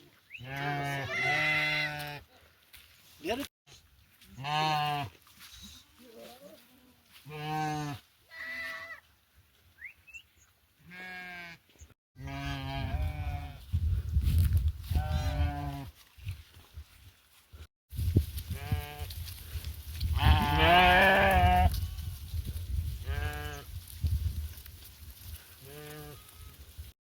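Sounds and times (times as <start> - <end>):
sheep bleating: 0.4 - 2.2, 7.2 - 9.0, 10.8 - 11.6, 12.2 - 13.6, 20.2 - 22.1, 23.1 - 23.6, 25.6 - 26.6.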